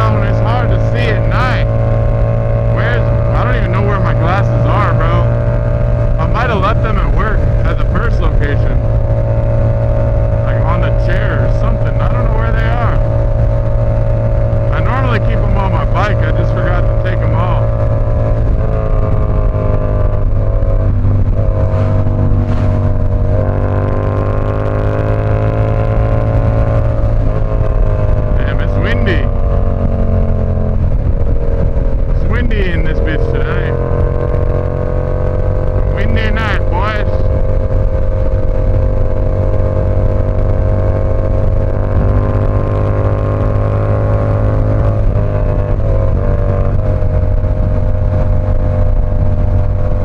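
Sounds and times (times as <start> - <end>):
motorcycle engine cruising: 0.0 - 50.0
wind rumble: 0.0 - 50.0.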